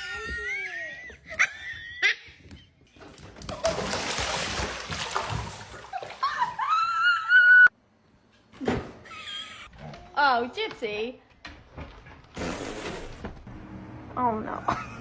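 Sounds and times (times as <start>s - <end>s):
water splashing: 3.4s - 6.7s.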